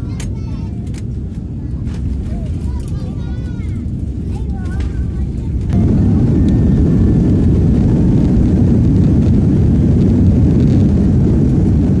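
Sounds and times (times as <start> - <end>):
airliner engines rumbling: 0.0 - 12.0.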